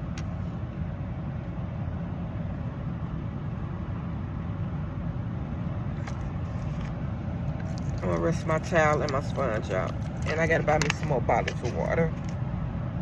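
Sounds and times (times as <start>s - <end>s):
car engine idling: 3.2s - 13.0s.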